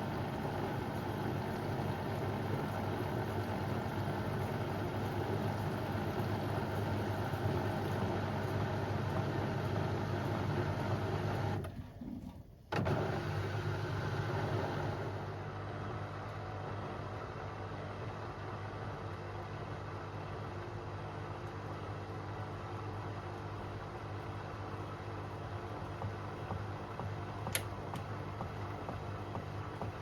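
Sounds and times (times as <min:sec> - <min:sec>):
washing machine humming: 0:00.0 - 0:30.0.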